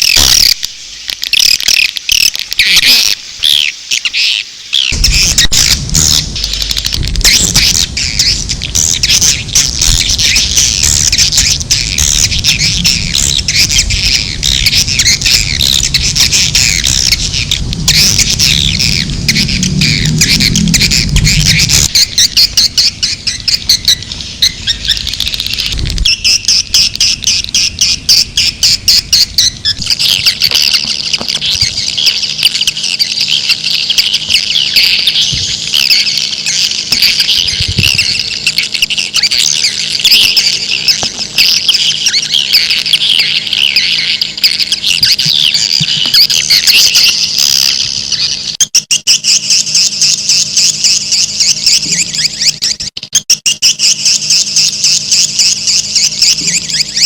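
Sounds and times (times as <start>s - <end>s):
swiftlets twittering: 4.8s - 57.0s
low hum: 5.0s - 48.4s.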